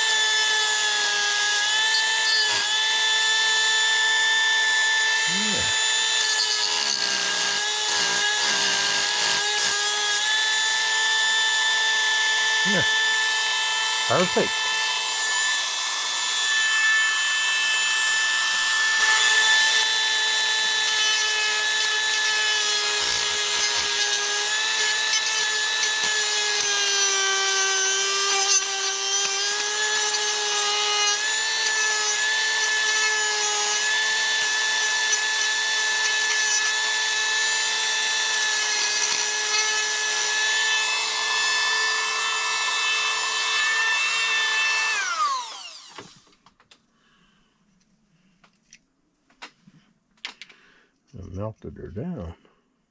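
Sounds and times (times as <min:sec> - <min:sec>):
rotary tool grinding plastic: 0:04.7 - 0:10.7, 0:18.7 - 0:46.3.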